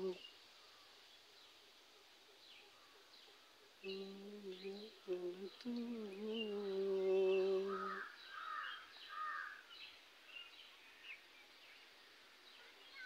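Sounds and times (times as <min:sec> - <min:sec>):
person humming: 0:00.0 - 0:00.2, 0:03.8 - 0:08.0
small birds chirping faintly: 0:00.0 - 0:13.0.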